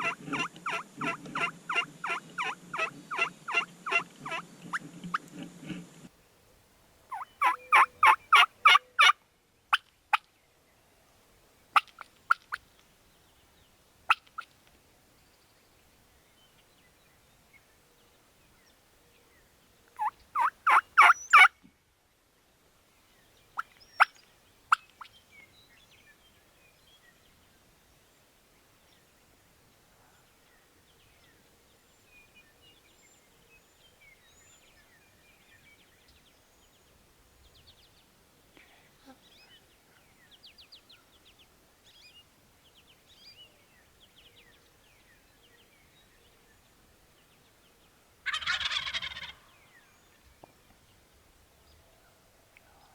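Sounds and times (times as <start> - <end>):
wild turkey calls: 0.0 - 4.4, 7.1 - 10.2, 11.8 - 12.7, 14.1 - 14.6, 20.0 - 21.5, 48.2 - 49.9
faint songbird chirps: 7.1 - 21.8, 22.8 - 52.9.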